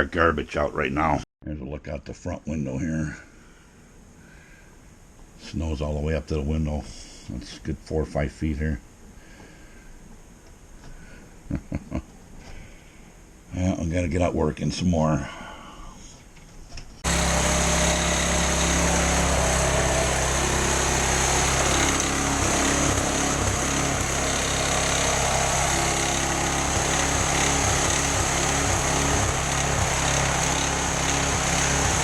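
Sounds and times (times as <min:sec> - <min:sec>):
snowblower running: 0:17.0 - 0:32.0.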